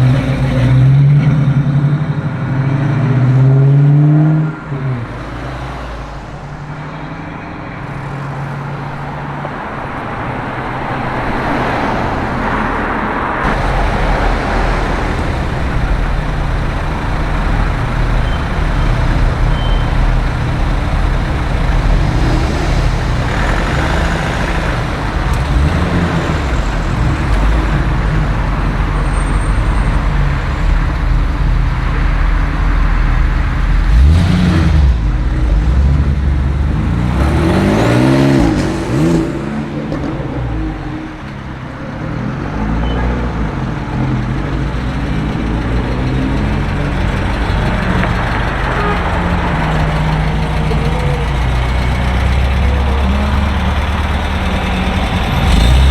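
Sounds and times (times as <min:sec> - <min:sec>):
car engines running: 0:00.0 - 0:55.9
cars driving past: 0:00.0 - 0:55.9
engine revving: 0:11.5 - 0:40.6, 0:42.5 - 0:55.9.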